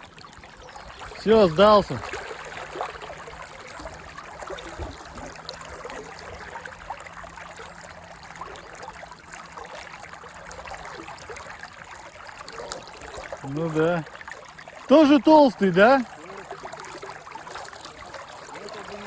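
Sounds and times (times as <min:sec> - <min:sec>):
river water rippling: 0:00.0 - 0:19.0
small splashes: 0:00.0 - 0:19.0.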